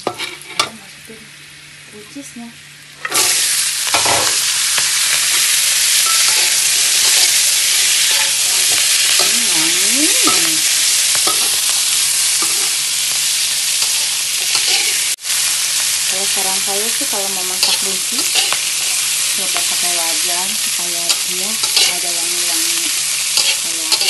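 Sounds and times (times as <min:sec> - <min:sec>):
metal spatula scraping wok: 0:00.0 - 0:00.7, 0:03.0 - 0:04.3, 0:06.0 - 0:12.8, 0:13.7 - 0:15.2, 0:17.4 - 0:20.3, 0:21.1 - 0:24.0
beans sizzling in butter: 0:00.0 - 0:24.0.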